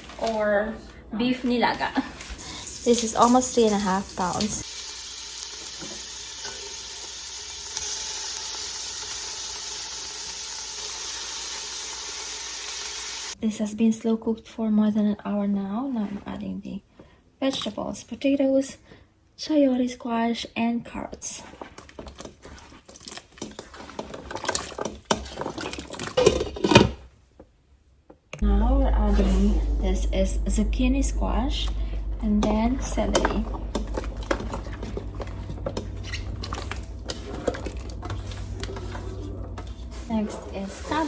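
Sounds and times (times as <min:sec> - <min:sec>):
beef sizzling in a pot: 0:02.2 - 0:13.4.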